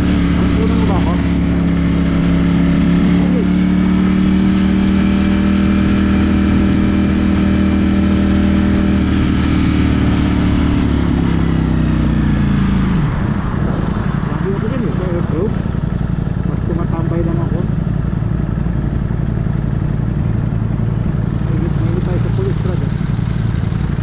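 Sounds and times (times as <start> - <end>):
motorcycle engine revving: 0.0 - 24.0
wind noise: 12.1 - 15.4.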